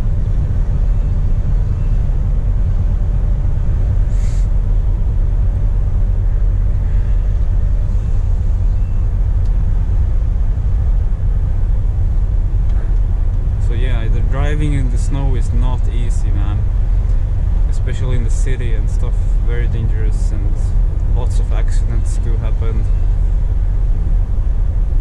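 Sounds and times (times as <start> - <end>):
truck diesel engine rumbling: 0.0 - 25.0
short hiss: 4.1 - 4.5.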